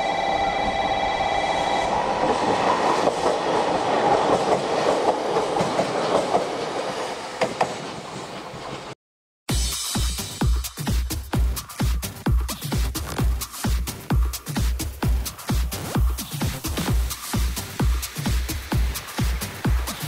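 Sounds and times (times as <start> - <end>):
train rumble: 0.0 - 9.0, 13.0 - 20.0
train steady whine: 0.0 - 9.0, 17.0 - 20.0.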